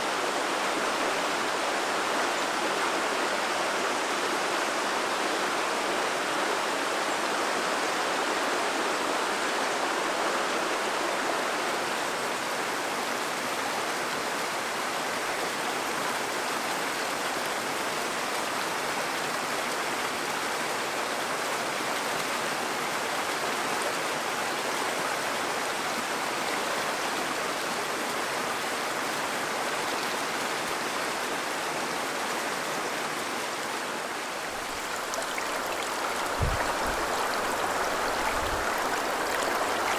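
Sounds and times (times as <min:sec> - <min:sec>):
river rushing over stones: 0:33.0 - 0:39.9.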